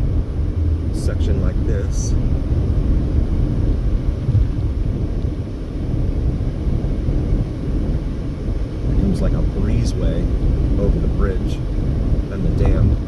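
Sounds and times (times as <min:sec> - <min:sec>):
road noise: 0:00.0 - 0:13.0
wind noise: 0:00.0 - 0:13.0.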